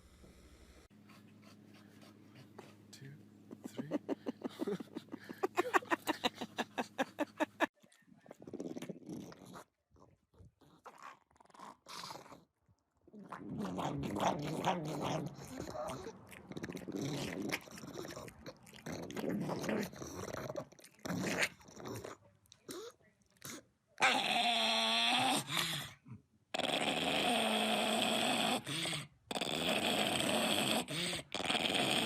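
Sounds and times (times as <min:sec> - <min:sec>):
dog growling and whining: 0:13.1 - 0:23.0, 0:24.0 - 0:32.0.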